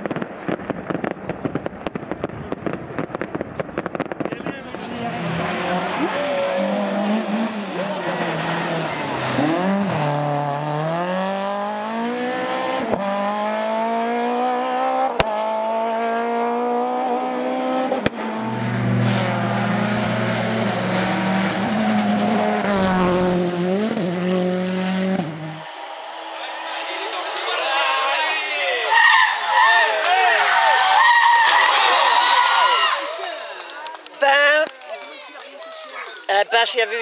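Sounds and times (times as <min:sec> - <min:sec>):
sharp cracks: 0:00.0 - 0:04.6, 0:31.1 - 0:32.0
rally car engine at high revs: 0:04.8 - 0:25.6.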